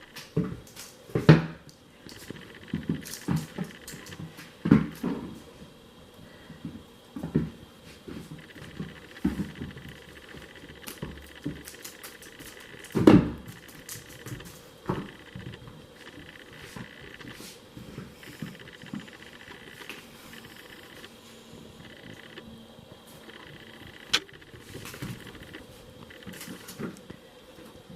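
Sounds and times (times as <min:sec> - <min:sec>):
pet thumping and pattering: 0:00.1 - 0:05.7, 0:06.5 - 0:21.1.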